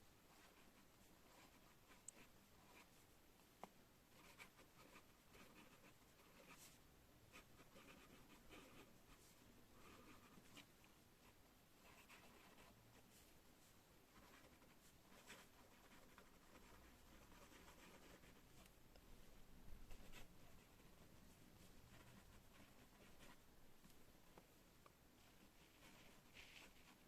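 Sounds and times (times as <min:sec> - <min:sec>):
pen scratching on paper: 0:00.3 - 0:02.9, 0:04.1 - 0:09.2, 0:09.8 - 0:10.7, 0:11.8 - 0:12.8, 0:14.1 - 0:18.7, 0:19.8 - 0:21.0, 0:21.9 - 0:23.4, 0:25.3 - 0:27.0.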